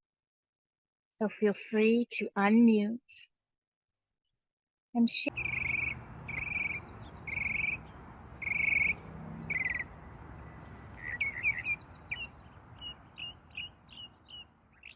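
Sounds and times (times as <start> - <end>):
bird chirping: 5.3 - 14.9
bird harsh buzzy calls: 5.3 - 14.9.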